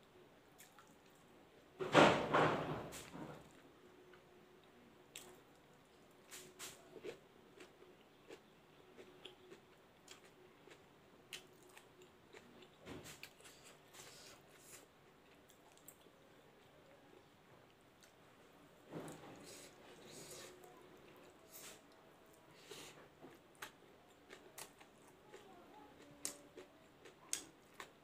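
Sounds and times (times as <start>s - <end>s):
chewing and crunching: 3.3s - 16.8s, 22.6s - 28.0s.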